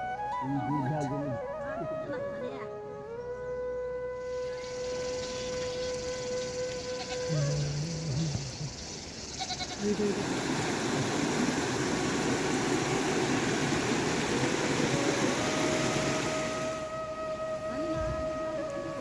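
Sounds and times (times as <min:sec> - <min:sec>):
steady rain: 0:04.2 - 0:19.0
goat bleating: 0:07.0 - 0:07.7, 0:09.4 - 0:10.0.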